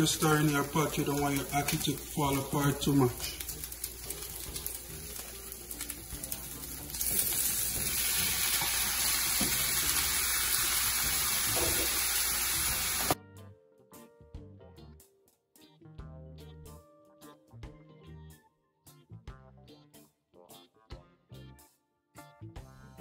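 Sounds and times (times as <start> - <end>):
food sizzling in oil: 0.0 - 13.2
food stirred in pan: 0.0 - 13.2
background music: 0.0 - 23.0.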